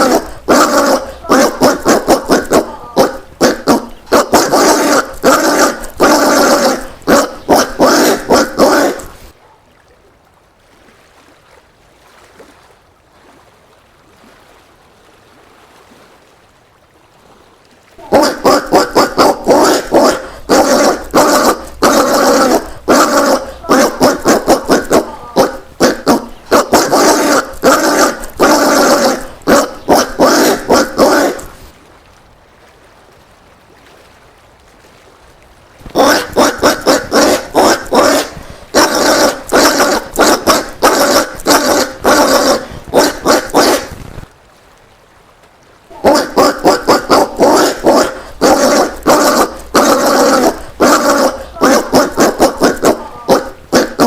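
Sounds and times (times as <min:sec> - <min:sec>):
peccary calling: 0:00.0 - 0:09.3, 0:18.0 - 0:31.7, 0:35.8 - 0:44.0, 0:45.9 - 0:54.0.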